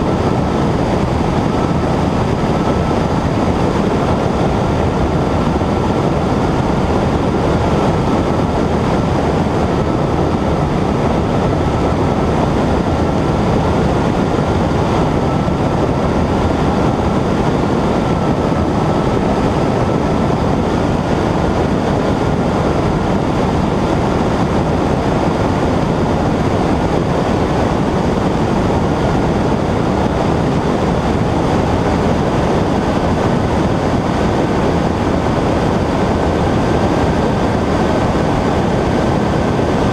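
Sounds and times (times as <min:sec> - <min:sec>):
airplane engine and propeller: 0:00.0 - 0:39.9.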